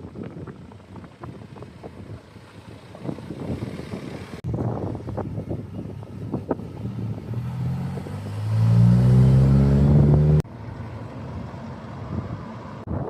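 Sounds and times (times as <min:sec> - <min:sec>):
car engine accelerating: 0:06.4 - 0:10.5.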